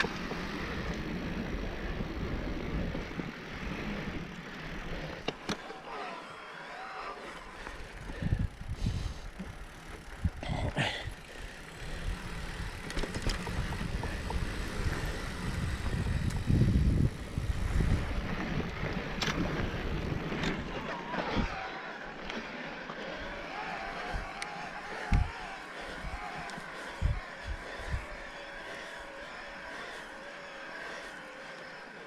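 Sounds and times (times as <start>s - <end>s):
bike tyres on rough sandy trail: 0.0s - 32.0s.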